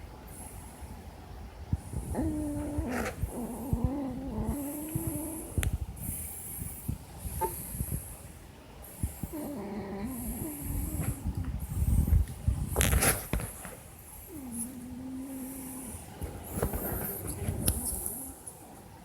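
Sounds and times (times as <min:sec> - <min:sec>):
dog snoring: 0:01.8 - 0:06.3, 0:09.0 - 0:13.6, 0:14.2 - 0:18.5.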